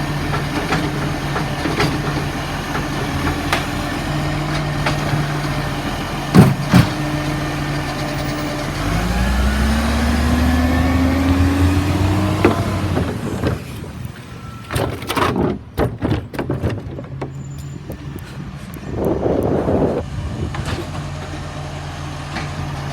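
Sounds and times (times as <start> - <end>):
garbage truck engine: 0.0 - 22.9
knocks and clatter: 0.2 - 3.8, 6.3 - 7.1, 14.6 - 17.7.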